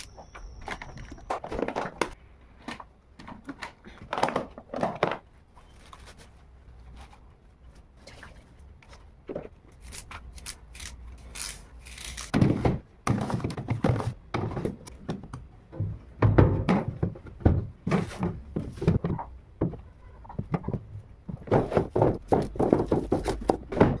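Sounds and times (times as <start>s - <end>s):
containers thunking and knocking: 12.3s - 24.0s.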